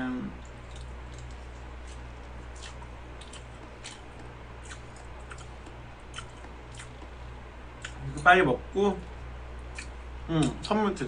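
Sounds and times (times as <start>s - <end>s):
steady low hum: 0.0s - 11.0s
wet chewing smacks and clicks: 0.4s - 7.2s, 9.7s - 10.8s.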